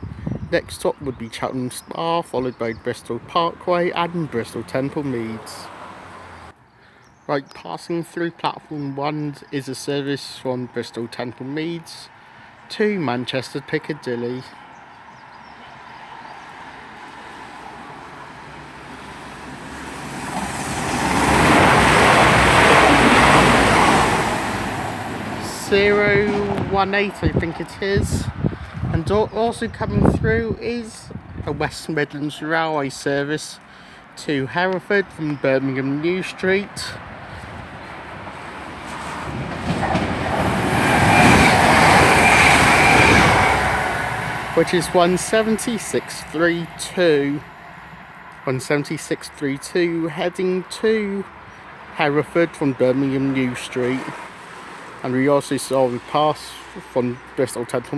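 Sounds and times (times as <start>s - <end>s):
diesel train passing: 3.6s - 6.6s, 16.7s - 28.4s, 36.0s - 50.3s.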